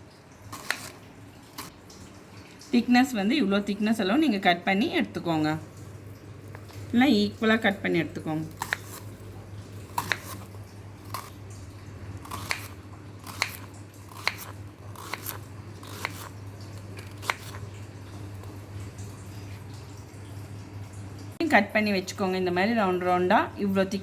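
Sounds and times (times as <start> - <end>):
knife slicing banana: 10.0 - 10.5, 12.3 - 16.3.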